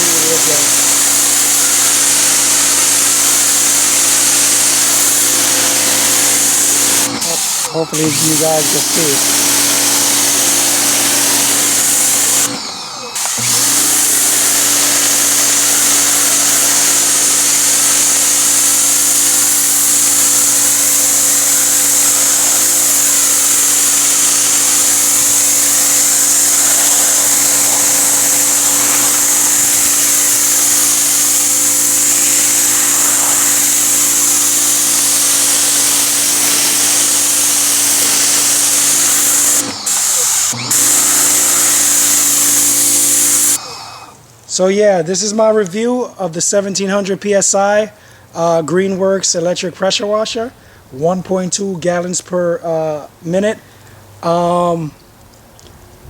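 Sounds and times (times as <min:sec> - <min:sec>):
pressure washer motor hum: 0:00.0 - 0:44.4
water jet hissing: 0:00.0 - 0:44.7.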